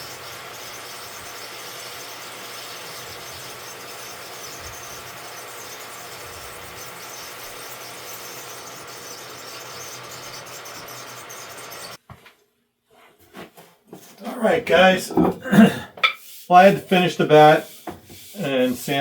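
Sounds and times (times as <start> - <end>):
hiss of turning wood: 0.0 - 12.0, 14.2 - 19.0
wood lathe humming: 0.0 - 12.0.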